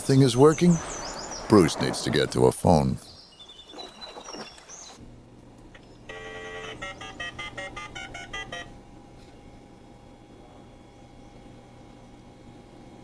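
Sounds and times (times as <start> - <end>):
telephone dial tone: 6.1 - 8.7
telephone dialing beeps: 6.1 - 8.7.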